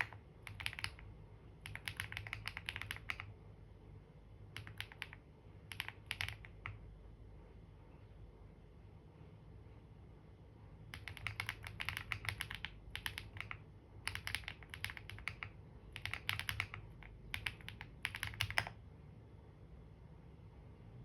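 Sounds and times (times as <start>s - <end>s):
typing on computer keyboard: 0.0s - 3.4s, 4.5s - 6.8s, 10.9s - 18.8s.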